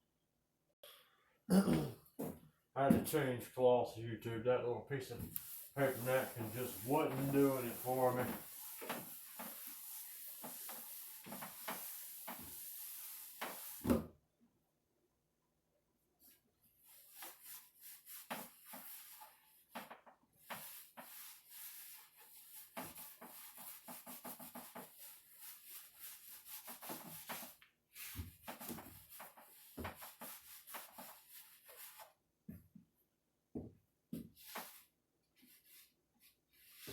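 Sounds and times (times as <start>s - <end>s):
damp cloth wiping wood: 5.2s - 13.8s, 16.8s - 19.8s, 20.4s - 32.2s, 34.4s - 36.9s.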